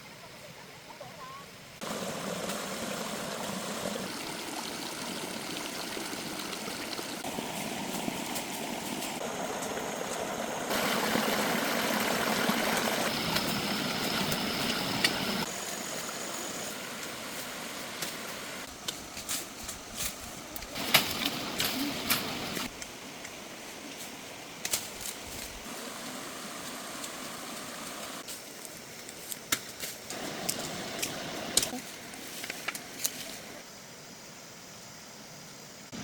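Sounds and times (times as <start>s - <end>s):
water rushing in a stream: 1.8s - 18.7s, 20.6s - 24.6s, 25.6s - 28.2s, 30.1s - 31.8s.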